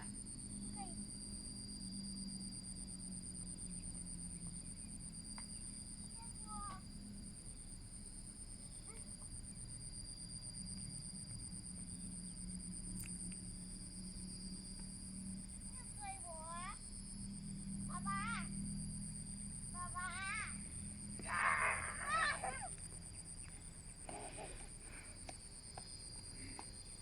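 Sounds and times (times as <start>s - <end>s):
low steady hum: 0.0s - 27.0s
high-pitched insect trilling: 8.6s - 27.0s.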